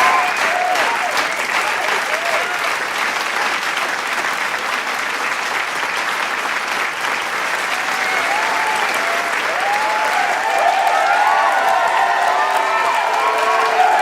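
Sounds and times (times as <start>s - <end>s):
cheers and shouts: 0.0s - 2.8s, 7.6s - 14.0s
crowd applauding: 0.0s - 14.0s.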